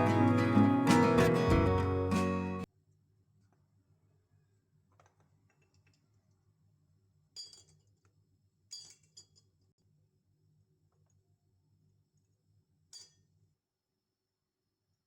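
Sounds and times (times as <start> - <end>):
small objects clinking and tapping: 4.9 - 6.4, 7.4 - 9.8, 12.9 - 13.4.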